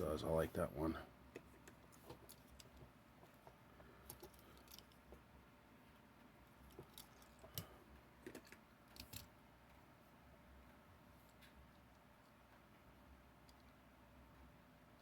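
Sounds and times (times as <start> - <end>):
low steady hum: 0.0 - 15.0
faint clicks and taps: 1.3 - 5.3.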